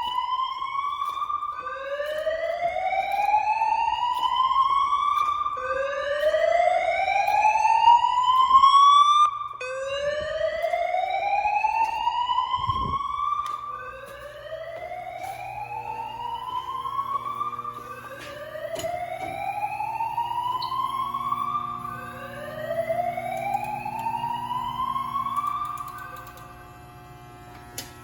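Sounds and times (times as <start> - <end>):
fire alarm rising sweep tone: 0.0 - 28.0.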